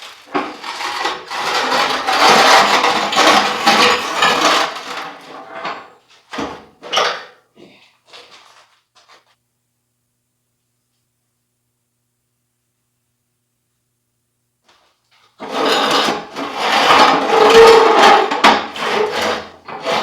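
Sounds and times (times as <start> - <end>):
metal rattling scrape: 0.3 - 5.8, 15.4 - 20.0.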